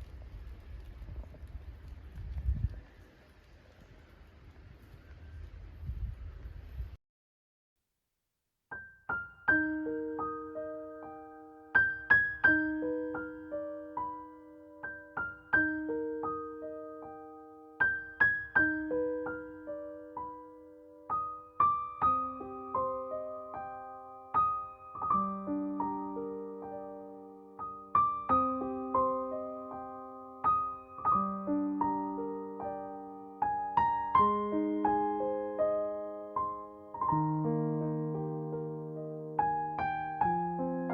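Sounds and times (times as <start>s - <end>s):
soft slow piano music: 8.7s - 40.9s.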